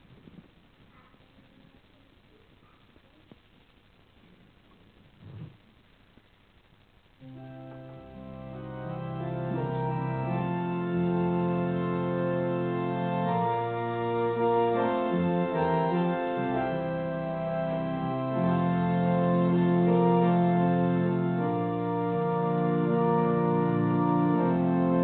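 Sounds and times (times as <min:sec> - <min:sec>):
organ playing slow chords: 0:07.2 - 0:25.0.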